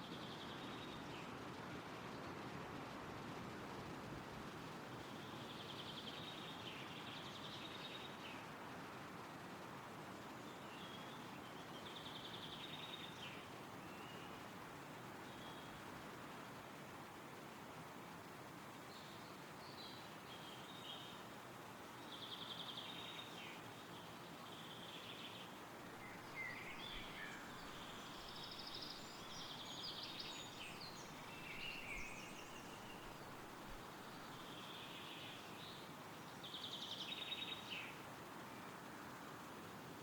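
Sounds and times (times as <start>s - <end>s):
wind through trees: 0.0s - 40.0s
songbirds singing trilled phrases: 22.0s - 38.0s.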